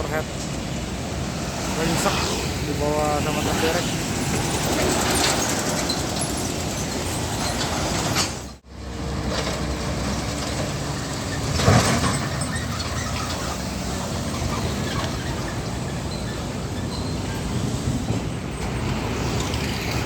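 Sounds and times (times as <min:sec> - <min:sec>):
highway traffic roar: 0:00.0 - 0:20.0
vehicle passing loudly: 0:00.8 - 0:15.5.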